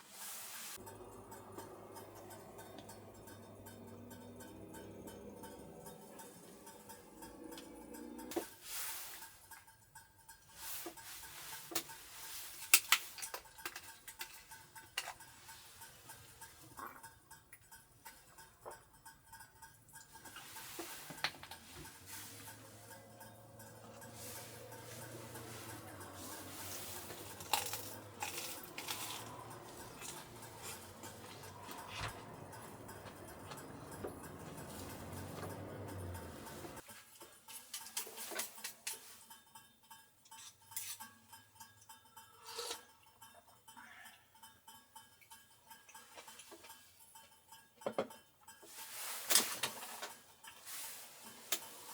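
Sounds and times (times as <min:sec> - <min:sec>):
small hard objects clinking: 0:10.5 - 0:17.0, 0:18.0 - 0:39.2
small objects clicking: 0:12.6 - 0:15.3, 0:24.9 - 0:34.4.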